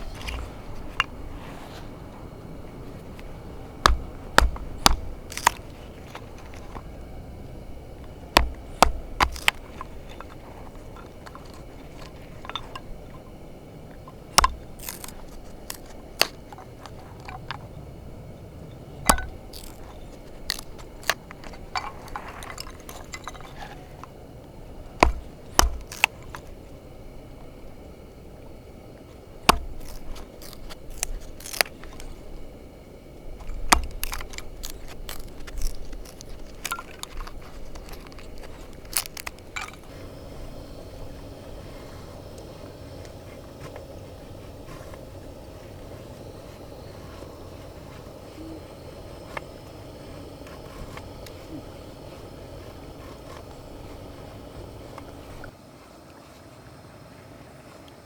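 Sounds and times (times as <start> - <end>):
soft scraping of utensils: 0.0 - 17.8, 18.6 - 24.5.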